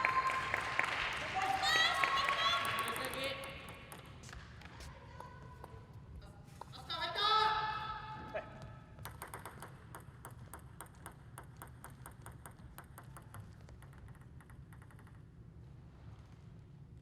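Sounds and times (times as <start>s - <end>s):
table tennis ball bouncing: 2.3s - 4.4s, 8.9s - 15.4s.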